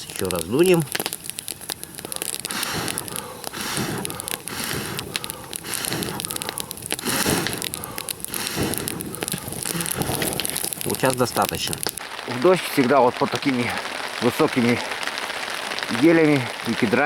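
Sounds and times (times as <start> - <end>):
burning wood crackling: 0.0 - 17.0
person blowing on fire: 0.9 - 12.0.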